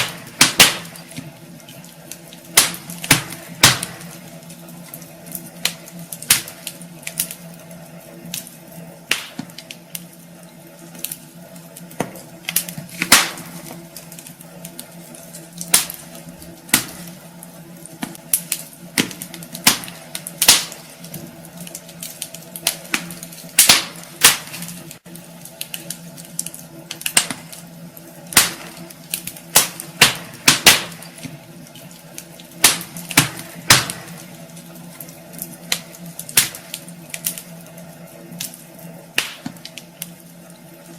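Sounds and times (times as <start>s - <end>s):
fire low hum: 0.0s - 40.9s
wood fire crackling and popping: 0.0s - 40.9s.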